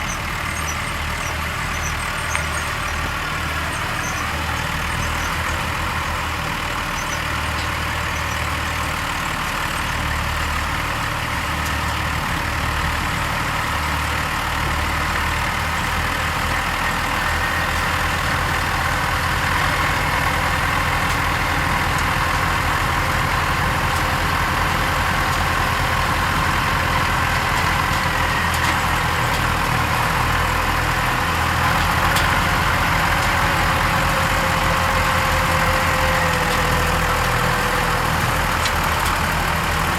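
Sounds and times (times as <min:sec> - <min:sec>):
harvester machinery running: 0:00.0 - 0:39.9
tractor engines droning: 0:00.0 - 0:39.9.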